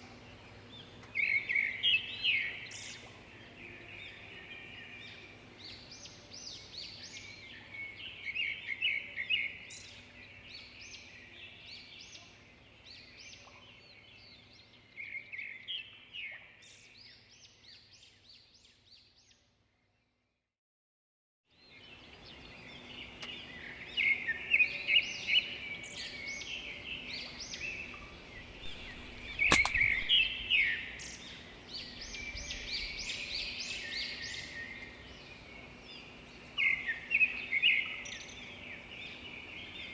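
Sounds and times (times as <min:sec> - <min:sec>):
sharp snap: 0:28.6 - 0:30.3
small birds chirping: 0:28.6 - 0:30.5.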